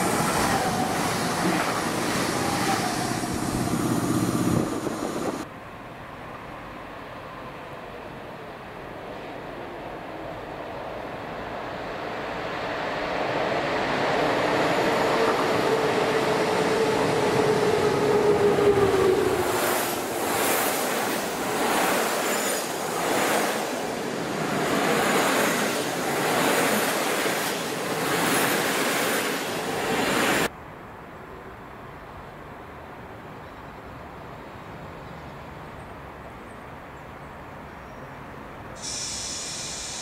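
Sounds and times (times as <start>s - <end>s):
train passing: 0.0s - 30.5s, 38.8s - 40.0s.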